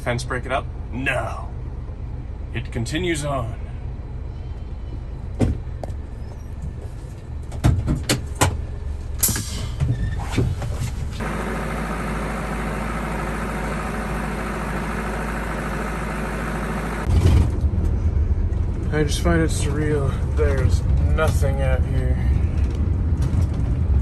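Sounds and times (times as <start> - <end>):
truck engine and road rumble: 0.0 - 24.0.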